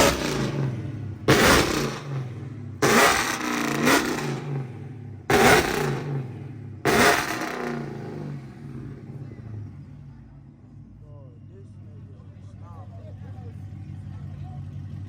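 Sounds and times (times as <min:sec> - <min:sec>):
car engine revving: 0:00.0 - 0:10.2
car engine idling: 0:00.0 - 0:15.0.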